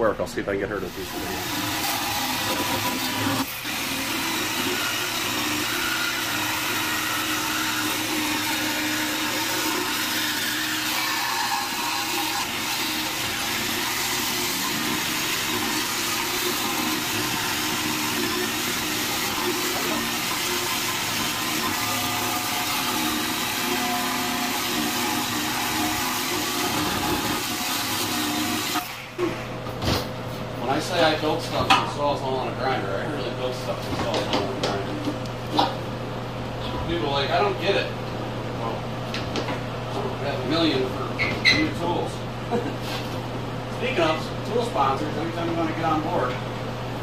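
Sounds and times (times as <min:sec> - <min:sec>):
angle grinder cutting steel: 0:00.9 - 0:29.1.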